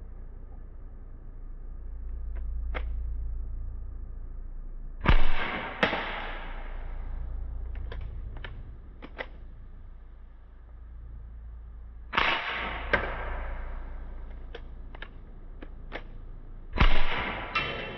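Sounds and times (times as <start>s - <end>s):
bb gun shot: 5.0s - 7.1s, 12.1s - 14.5s, 16.8s - 17.9s
sharp crack: 5.0s - 17.9s
light clicks: 7.5s - 9.7s, 12.8s - 16.4s.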